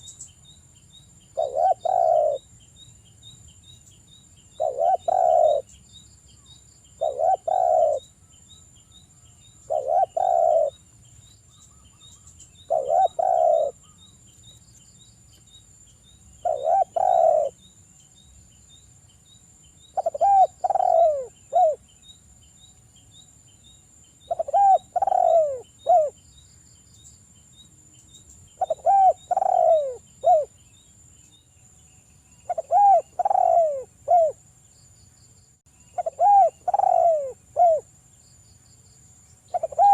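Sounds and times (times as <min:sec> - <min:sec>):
insects ticking: 0:00.0 - 0:39.9
dove cooing: 0:01.3 - 0:02.5, 0:04.6 - 0:05.7, 0:07.0 - 0:08.1, 0:09.7 - 0:10.8, 0:12.6 - 0:14.0, 0:16.4 - 0:17.6, 0:20.0 - 0:21.8, 0:24.3 - 0:26.2, 0:28.6 - 0:30.6, 0:32.5 - 0:34.4, 0:36.0 - 0:37.9, 0:39.5 - 0:39.9.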